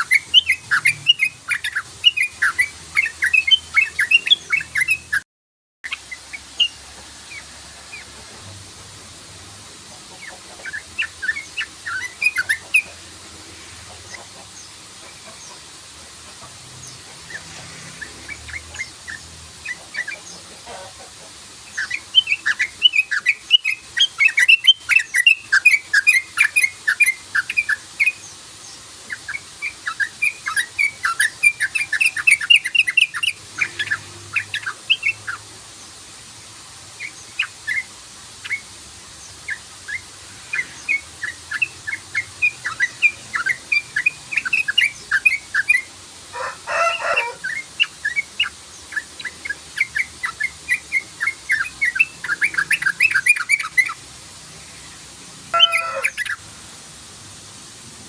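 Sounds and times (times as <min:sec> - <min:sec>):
bird chattering: 0:10.0 - 0:13.0, 0:55.5 - 0:56.4.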